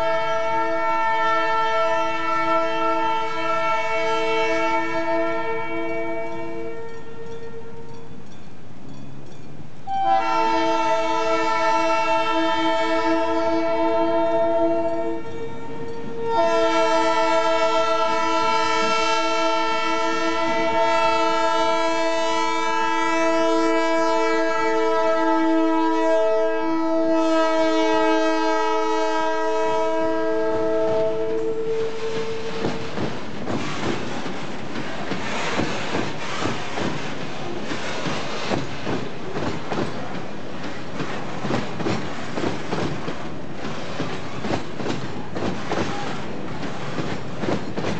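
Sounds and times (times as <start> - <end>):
locomotive air horn blasts: 0.0 - 8.0, 9.9 - 32.9
train rumble: 0.0 - 47.9.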